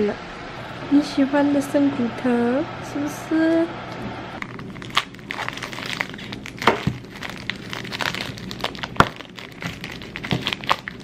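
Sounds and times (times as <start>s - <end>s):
bone cracking: 4.4s - 11.0s.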